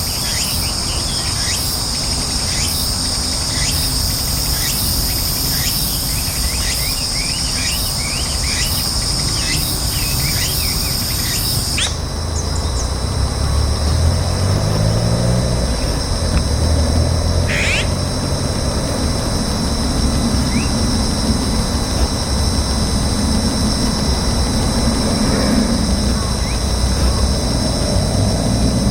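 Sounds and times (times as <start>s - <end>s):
bird call: 0.0s - 13.0s, 17.4s - 18.1s, 20.4s - 20.8s
bird chirps: 0.0s - 13.0s, 17.4s - 18.1s, 20.4s - 20.8s
insects buzzing: 0.0s - 28.9s
steady low hum: 0.0s - 28.9s.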